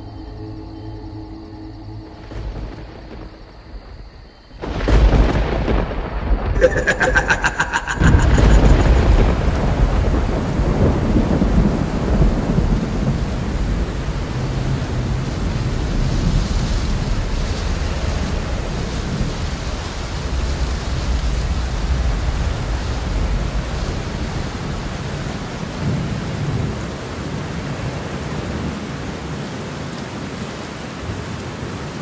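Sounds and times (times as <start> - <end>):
steady rain: 1.8 - 32.0
rolling thunder: 2.2 - 19.6.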